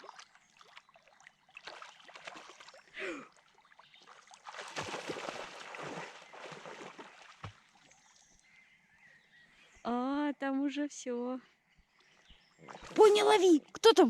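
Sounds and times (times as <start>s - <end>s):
splashing in shallow water: 0.0s - 8.4s, 12.6s - 13.4s.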